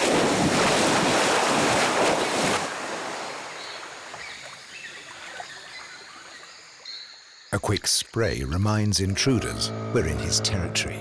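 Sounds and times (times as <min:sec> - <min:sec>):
heavy water splashing: 0:00.0 - 0:04.5.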